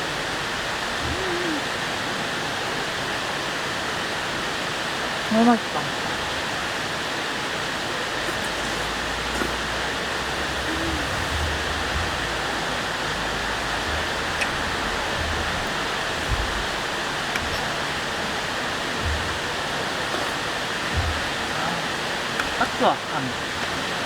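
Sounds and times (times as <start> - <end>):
stream rushing over rocks: 0.0 - 24.0
faint low knocks: 8.2 - 24.0.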